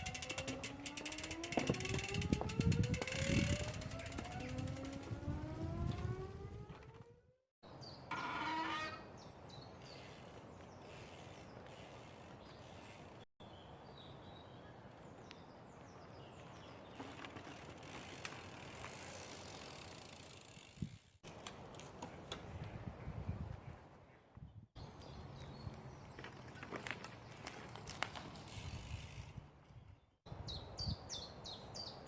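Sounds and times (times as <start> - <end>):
freewheel hub ticking: 0.0 - 5.4
bike rolling on a trail: 0.0 - 7.2, 7.9 - 13.6, 14.3 - 22.9, 24.8 - 30.0.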